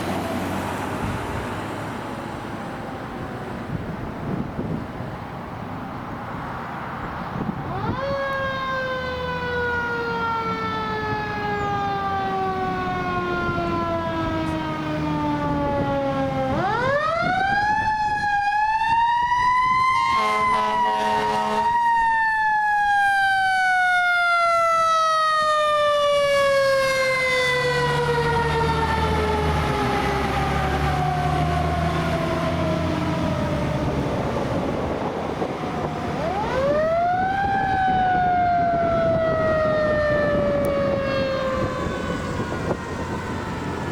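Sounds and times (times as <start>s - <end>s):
low truck engine rumble: 0.0s - 18.3s, 21.6s - 43.9s
air horn blast: 20.0s - 21.8s.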